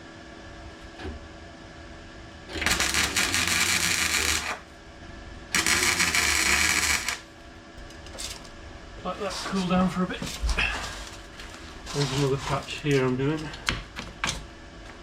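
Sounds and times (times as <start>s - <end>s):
welder arcing crackle and hiss: 2.5s - 4.7s, 5.5s - 7.3s.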